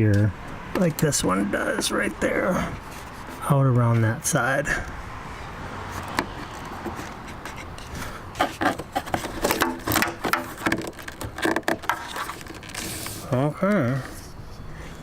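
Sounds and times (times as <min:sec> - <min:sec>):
squeaky rubbing: 0:06.0 - 0:13.4
clicks and knocks of parts: 0:06.0 - 0:14.1.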